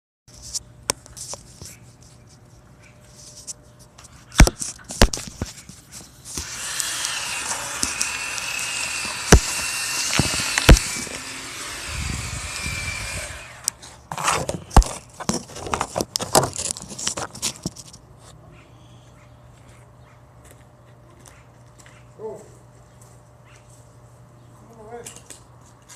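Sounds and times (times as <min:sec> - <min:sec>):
chainsaw running: 0:06.4 - 0:13.8.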